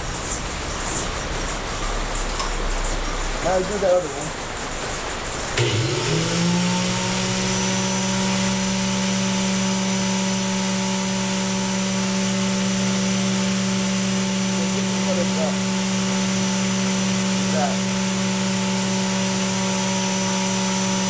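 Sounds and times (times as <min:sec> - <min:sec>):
angle grinder whining: 0:05.6 - 0:21.0.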